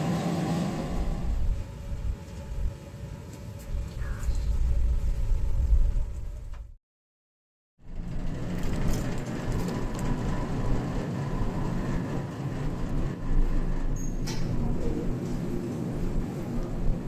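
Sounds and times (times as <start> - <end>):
low vehicle rumble: 0.0 - 2.9, 7.8 - 17.0.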